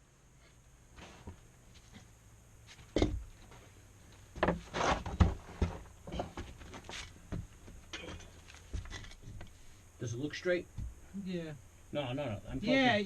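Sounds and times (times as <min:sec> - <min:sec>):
knocks of wood and metal: 0:02.7 - 0:03.6, 0:04.3 - 0:09.6, 0:10.7 - 0:11.0
scrape of wood and metal: 0:04.4 - 0:07.1.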